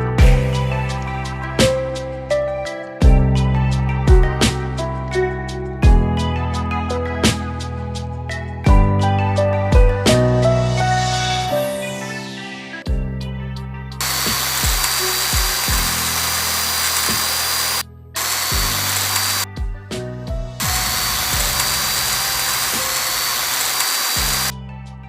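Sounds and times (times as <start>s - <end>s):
background music: 0.0s - 25.0s
small electric motor whining: 14.0s - 19.4s, 20.6s - 24.5s.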